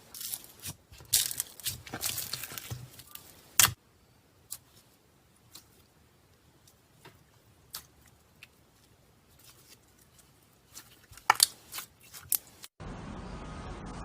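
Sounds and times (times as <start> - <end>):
slime clicking and popping: 11.1 - 11.9.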